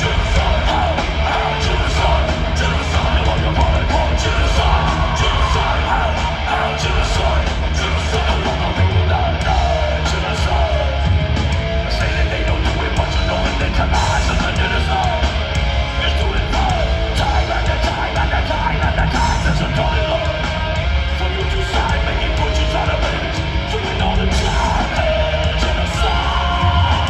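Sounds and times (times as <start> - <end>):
heavy metal band playing live: 0.0 - 27.0.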